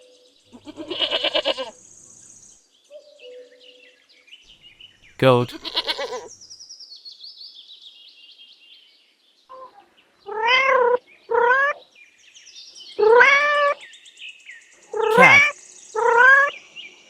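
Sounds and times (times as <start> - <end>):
cat meowing: 5.5 - 6.2.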